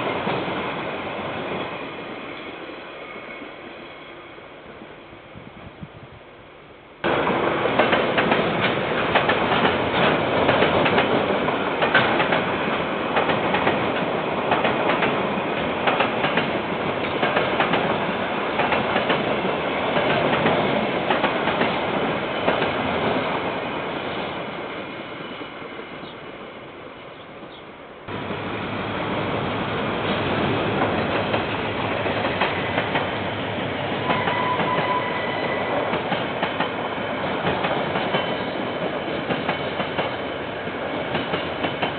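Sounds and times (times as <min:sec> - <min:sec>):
train rumbling past: 0:00.0 - 0:41.9.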